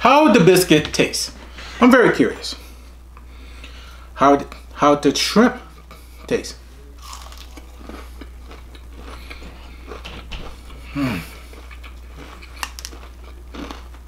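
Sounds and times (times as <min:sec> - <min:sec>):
person chewing crispy food: 0:07.0 - 0:14.0
person humming: 0:10.9 - 0:11.4.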